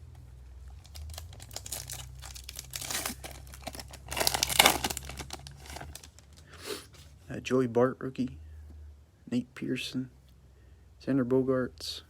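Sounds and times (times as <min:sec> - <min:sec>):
foil wrapper crinkling: 0:00.7 - 0:06.6.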